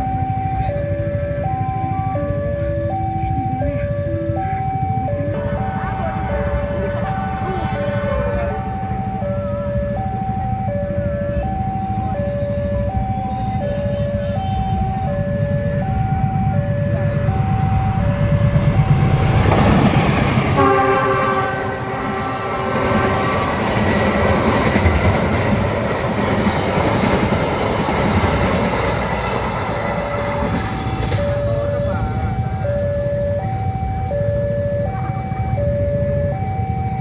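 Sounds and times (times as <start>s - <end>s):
level crossing alarm two-note tone: 0.0s - 19.8s, 20.5s - 25.6s, 28.8s - 37.0s
train rumbling past: 1.0s - 37.0s
wheels clattering over rails: 17.4s - 20.9s, 21.6s - 32.6s
train horn chord: 20.5s - 24.4s.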